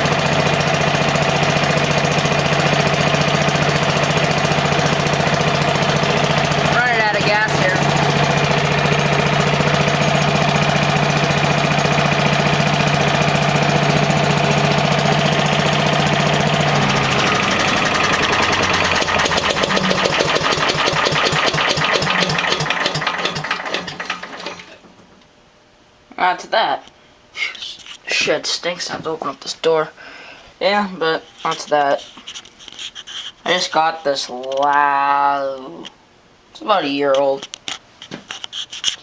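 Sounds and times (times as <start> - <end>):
small engine running: 0.0 - 24.8.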